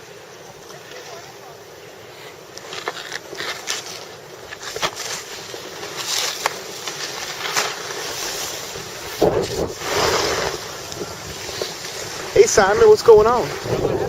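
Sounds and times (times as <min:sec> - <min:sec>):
wind buffeting microphone: 0:08.2 - 0:14.0.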